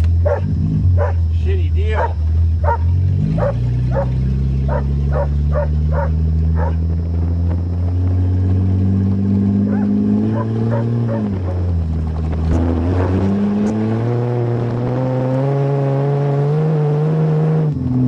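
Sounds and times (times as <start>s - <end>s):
car engine accelerating: 0.0s - 18.0s
dog yipping: 0.2s - 1.2s, 2.0s - 6.8s, 9.6s - 11.3s.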